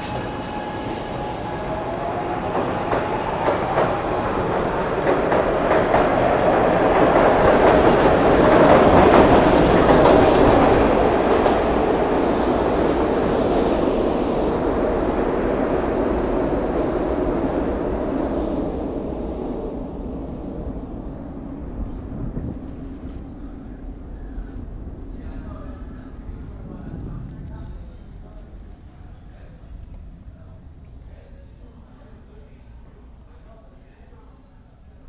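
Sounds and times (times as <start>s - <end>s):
elevated train wheels clattering: 0.0s - 31.3s.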